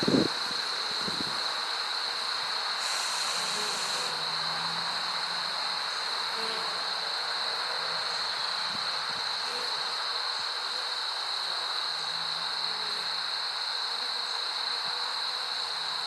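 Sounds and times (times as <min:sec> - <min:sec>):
high-pitched hiss: 0:00.0 - 0:16.0
bees buzzing: 0:00.1 - 0:07.2.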